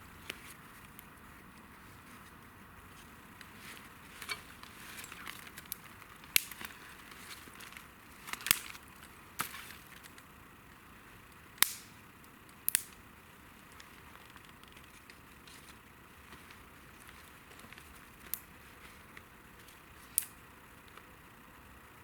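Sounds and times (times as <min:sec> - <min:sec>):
campfire crackling: 0:00.0 - 0:22.0
sharp fire pops: 0:11.6 - 0:12.0, 0:12.6 - 0:13.0.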